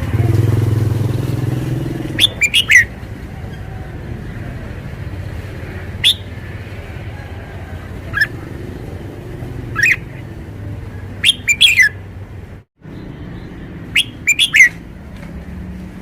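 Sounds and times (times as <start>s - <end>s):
bird calling in sharp high notes: 2.2s - 2.9s, 6.0s - 6.4s, 8.1s - 8.4s, 9.7s - 10.2s, 11.2s - 12.0s, 13.9s - 14.8s.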